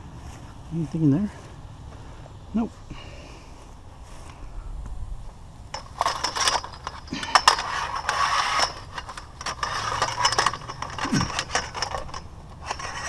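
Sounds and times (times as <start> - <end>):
scrap metal clanks and rattles: 5.7 - 13.0
scrap scraping: 5.8 - 13.0.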